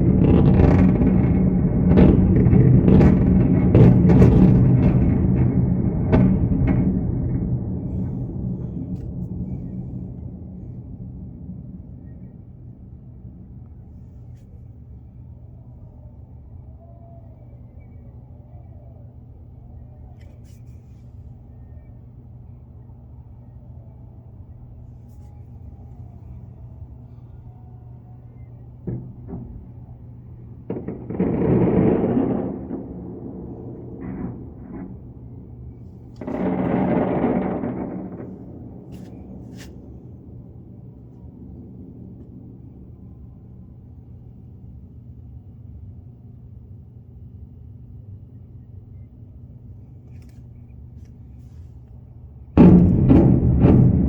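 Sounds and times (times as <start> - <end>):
explosive blasts: 0.0 - 13.4, 28.8 - 44.6, 52.6 - 54.0
low outdoor rumble: 0.0 - 54.0.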